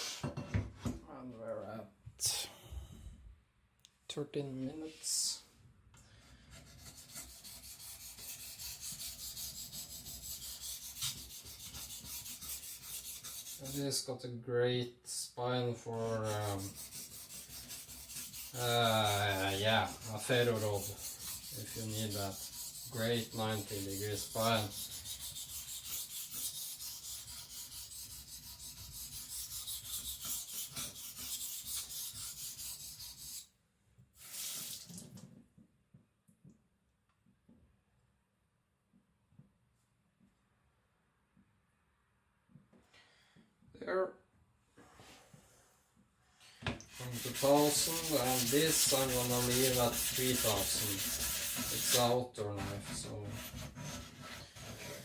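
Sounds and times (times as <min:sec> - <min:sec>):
knife scraping on whetstone: 0:06.5 - 0:13.8, 0:16.2 - 0:33.5, 0:46.9 - 0:52.1.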